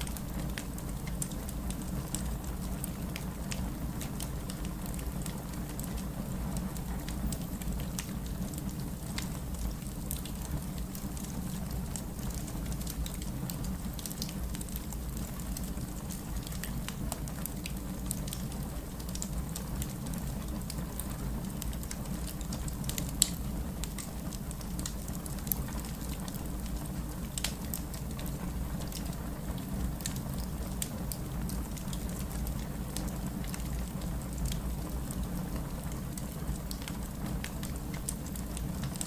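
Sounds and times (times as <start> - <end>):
wood fire crackling in fireplace: 0.0 - 39.0.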